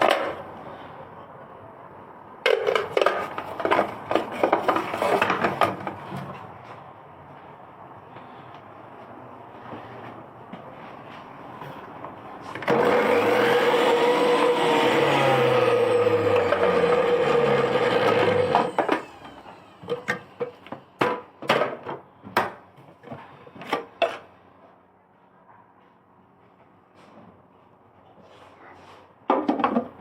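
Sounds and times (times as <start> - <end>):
juice extractor motor running: 12.5 - 20.0.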